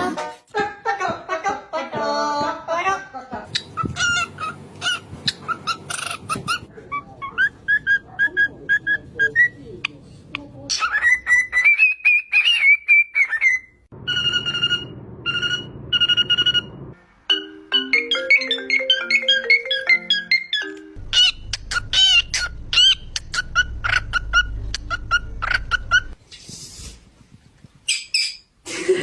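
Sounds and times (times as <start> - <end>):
parrot whistling: 3.5 - 9.6, 10.8 - 16.8, 18.1 - 26.2
beep-like whistled tones: 14.0 - 16.8.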